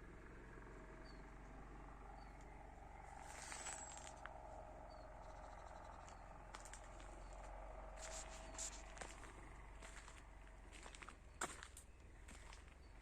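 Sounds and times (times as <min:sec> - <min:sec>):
soft scuffs: 0:08.0 - 0:10.2.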